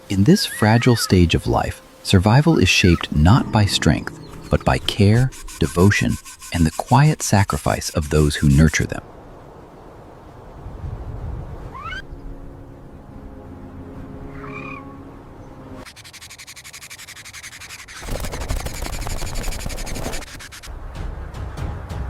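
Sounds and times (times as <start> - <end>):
bird chirp: 2.8 - 6.2
bird trilling chatter: 2.8 - 8.8, 15.9 - 20.7.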